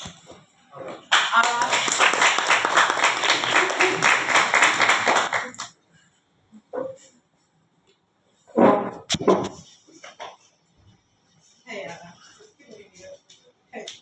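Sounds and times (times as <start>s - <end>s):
audience applauding: 1.1s - 5.7s.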